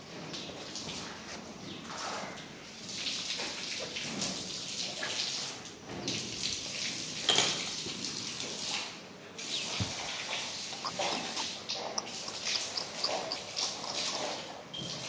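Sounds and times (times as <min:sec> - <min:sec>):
liquid splashing and pattering: 0:09.4 - 0:15.0.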